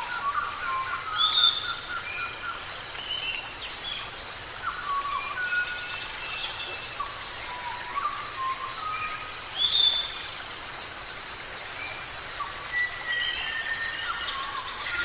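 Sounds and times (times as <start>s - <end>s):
steady hiss: 0.0s - 15.0s
birds chirping and whistling: 12.4s - 15.0s.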